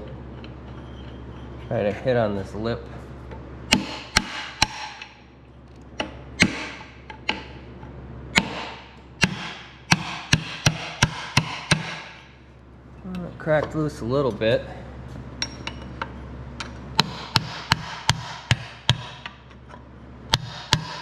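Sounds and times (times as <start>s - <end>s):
hammer striking metal punch: 3.7s - 5.2s, 6.0s - 7.6s, 8.3s - 12.3s, 17.0s - 19.4s, 20.3s - 21.0s.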